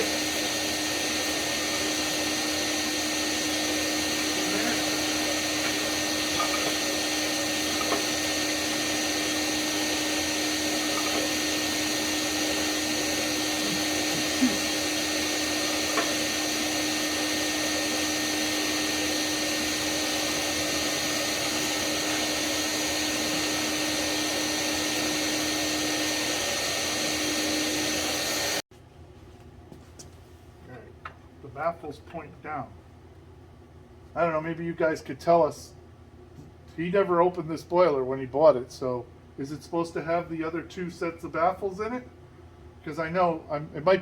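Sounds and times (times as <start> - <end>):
shop vacuum running: 0.0 - 28.6.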